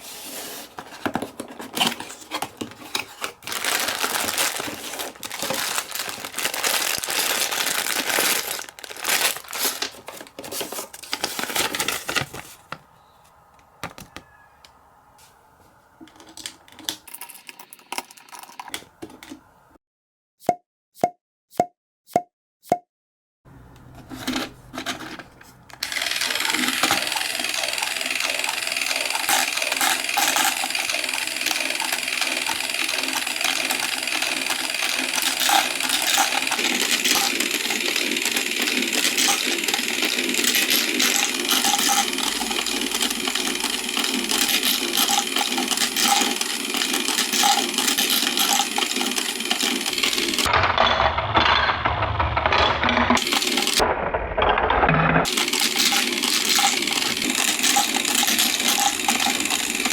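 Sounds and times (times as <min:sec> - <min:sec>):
marbles rattling down a marble run: 0:03.5 - 0:09.8, 0:25.8 - 0:53.8, 0:55.2 - 0:59.9.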